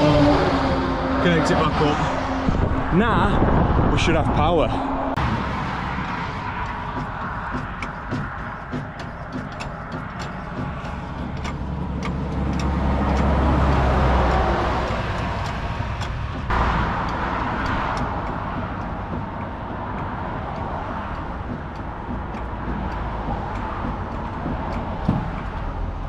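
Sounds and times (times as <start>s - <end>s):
truck diesel engine running: 5.1s - 26.0s
rapid regular ticking: 5.2s - 26.0s.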